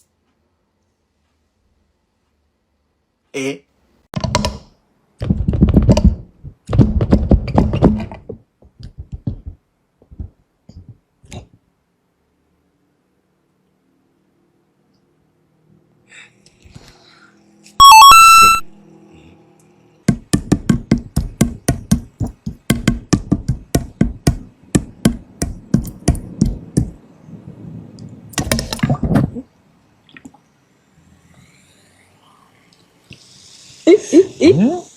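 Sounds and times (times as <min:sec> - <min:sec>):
electronic jingle: 0:17.8 - 0:18.7
sharp knocks: 0:20.1 - 0:27.0.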